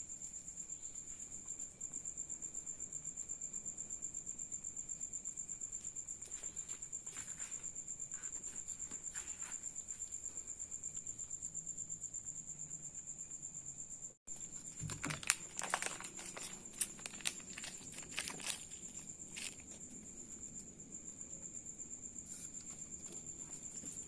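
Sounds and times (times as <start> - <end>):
cricket chirping trill: 0.0 - 24.0
sharp clicks and rustles: 14.3 - 19.9.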